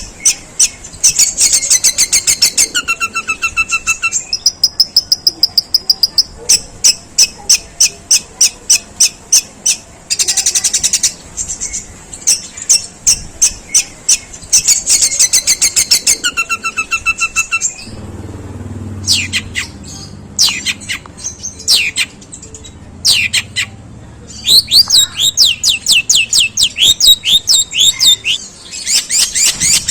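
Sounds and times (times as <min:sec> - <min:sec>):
bird singing harsh fast notes: 0:00.0 - 0:18.2, 0:18.9 - 0:29.9
falling sweeping bird calls: 0:13.5 - 0:22.3, 0:24.3 - 0:29.9.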